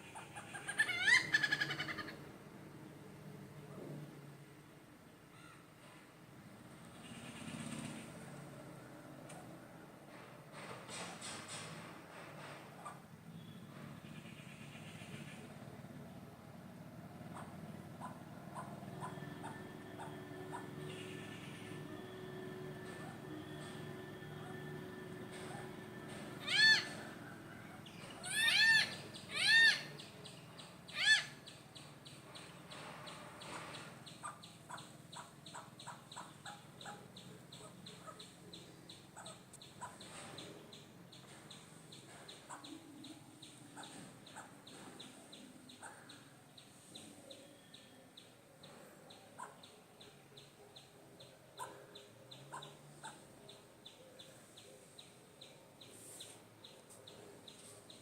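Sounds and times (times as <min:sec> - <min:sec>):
hornbills calling hoarsely: 0:00.0 - 0:02.4, 0:06.9 - 0:08.3, 0:17.0 - 0:31.6, 0:32.4 - 0:48.0, 0:51.6 - 0:54.4.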